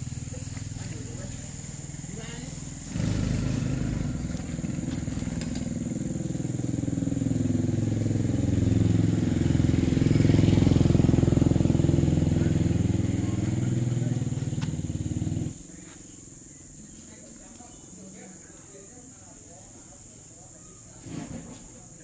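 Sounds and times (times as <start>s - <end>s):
small engine running: 0.0s - 15.6s.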